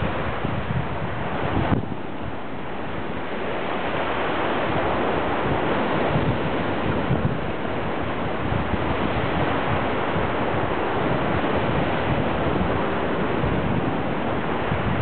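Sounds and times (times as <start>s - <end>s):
sea waves surf rushing: 0.0s - 15.0s
wind buffeting microphone: 0.0s - 15.0s.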